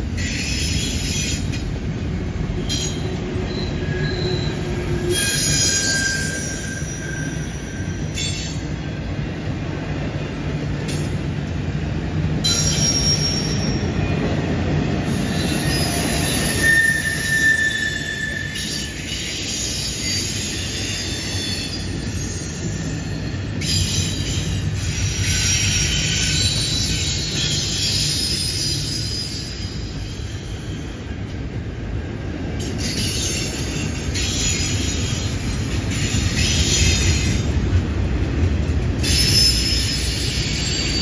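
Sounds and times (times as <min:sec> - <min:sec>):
steel wheels rumbling on rail: 0:00.0 - 0:41.0
high-pitched wheel squeal: 0:02.7 - 0:08.4, 0:15.1 - 0:23.4.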